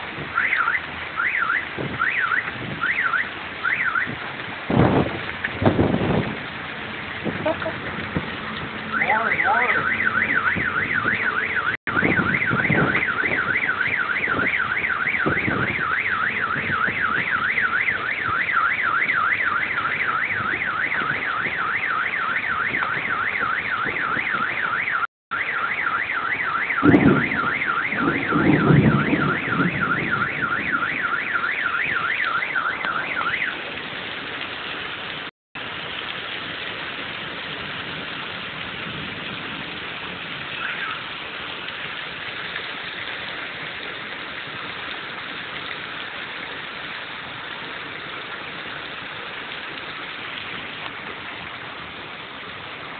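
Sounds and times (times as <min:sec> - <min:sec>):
hail and rain hiss: 0:00.0 - 0:11.2, 0:25.5 - 0:52.9
car alarm warbling: 0:00.3 - 0:04.2, 0:08.9 - 0:33.7, 0:40.6 - 0:41.1.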